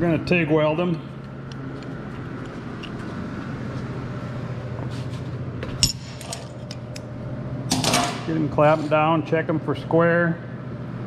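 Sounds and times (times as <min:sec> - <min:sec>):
low hum of shop equipment: 0:00.0 - 0:11.0.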